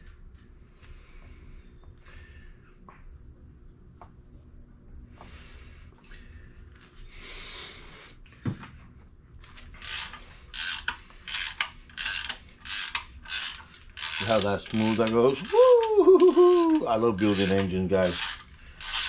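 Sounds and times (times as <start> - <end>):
hand ratchet clicking: 9.8 - 19.0.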